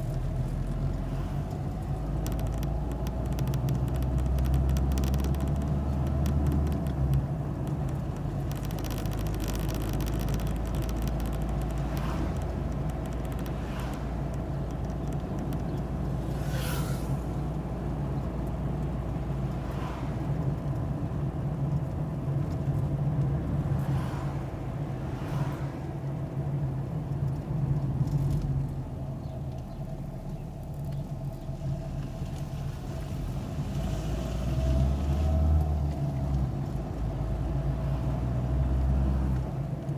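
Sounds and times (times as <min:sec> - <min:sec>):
car engine hum and road noise: 0:00.0 - 0:39.9
brief swishes: 0:16.3 - 0:17.3.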